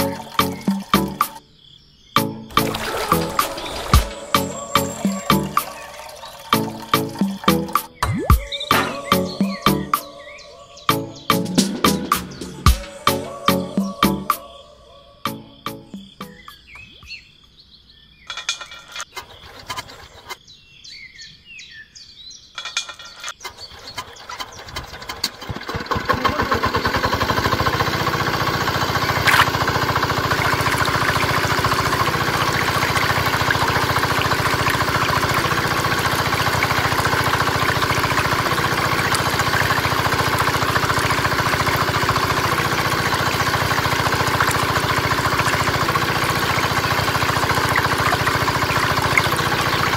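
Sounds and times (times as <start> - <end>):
small diesel engine starting: 0.0 - 1.4, 2.4 - 7.9, 23.5 - 49.9
birds chirping: 0.0 - 24.8.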